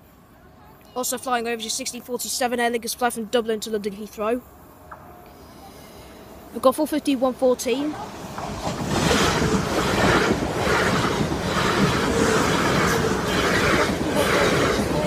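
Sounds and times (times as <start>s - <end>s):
train wheels running on rails: 7.4s - 15.0s.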